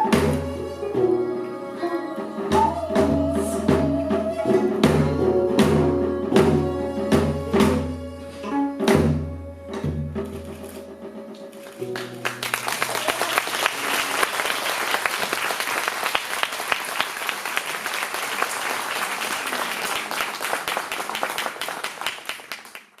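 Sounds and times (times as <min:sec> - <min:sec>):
audience applauding: 0:11.6 - 0:23.0.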